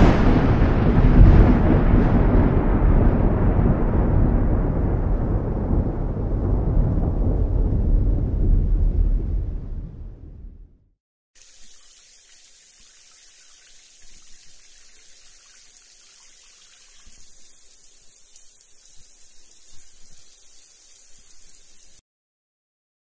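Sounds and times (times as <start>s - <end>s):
steady rain falling: 11.4s - 22.0s.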